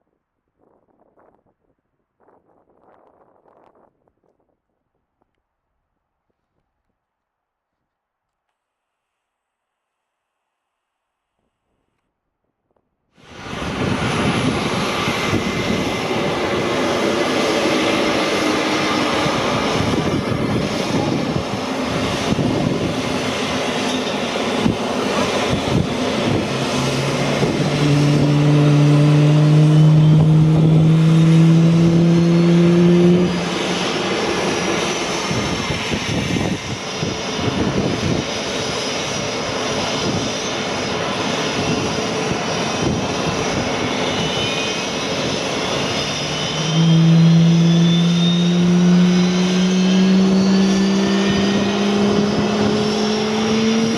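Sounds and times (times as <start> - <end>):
low drone rising in pitch: 13.2 - 38.3, 44.8 - 53.9
jet engines running: 13.2 - 53.9.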